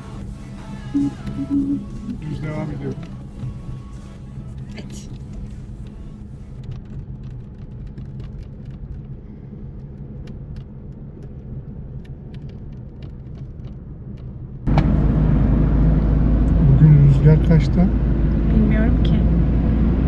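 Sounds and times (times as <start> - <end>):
engine and road rumble: 0.0 - 20.0.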